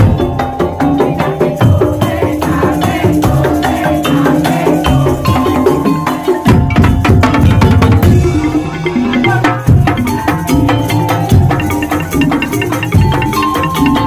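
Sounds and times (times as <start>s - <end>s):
pitched melodic notes: 0.0s - 14.0s
wooden slit drums and drums: 0.0s - 14.0s.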